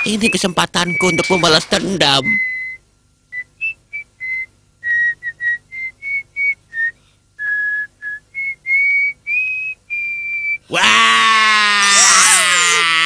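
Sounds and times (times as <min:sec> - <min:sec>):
person whistling a tune: 0:00.2 - 0:01.6, 0:02.2 - 0:10.7.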